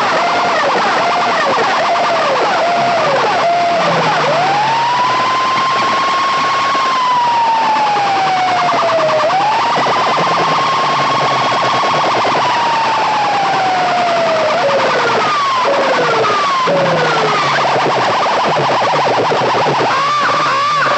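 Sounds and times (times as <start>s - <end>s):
siren tone sweeping: 0.0s - 20.9s.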